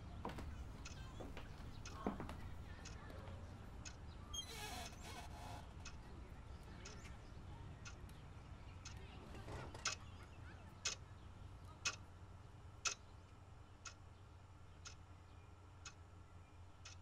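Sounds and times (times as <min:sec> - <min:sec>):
wall clock ticking: 0:00.3 - 0:04.0, 0:05.8 - 0:07.1, 0:11.8 - 0:12.0.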